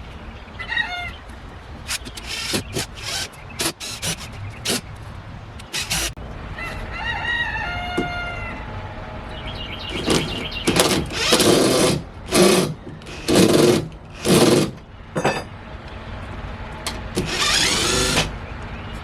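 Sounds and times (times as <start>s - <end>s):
cordless drill running: 1.9s - 4.8s, 5.7s - 6.2s, 11.1s - 14.6s, 17.2s - 18.3s.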